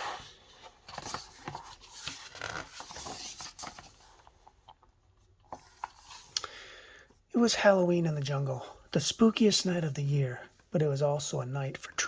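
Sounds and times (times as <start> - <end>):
book pages turning: 0.0 - 6.4.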